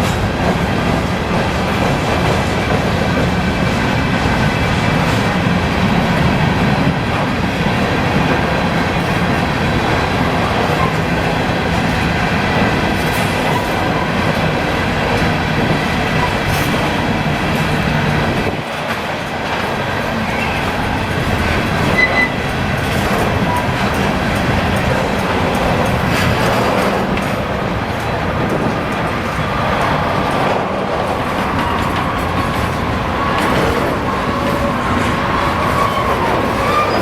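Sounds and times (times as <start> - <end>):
freight train rolling past: 0.0 - 37.0.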